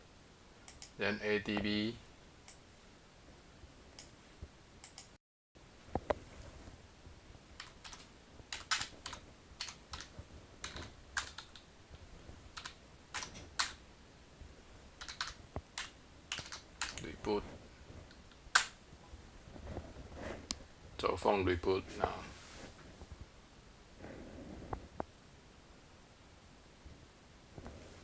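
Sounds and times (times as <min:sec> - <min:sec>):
keyboard key clicks: 0:07.6 - 0:11.6, 0:15.0 - 0:17.1.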